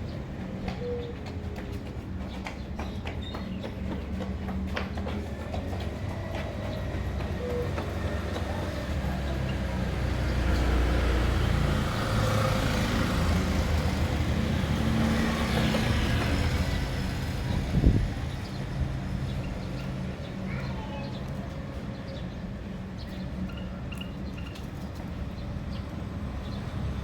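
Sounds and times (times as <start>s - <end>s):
vehicle passing with rumble: 7.0s - 19.4s.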